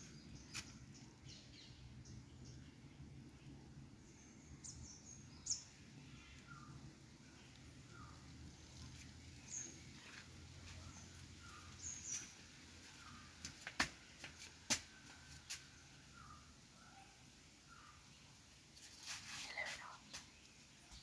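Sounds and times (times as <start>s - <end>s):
bird chirping: 0.0s - 13.4s.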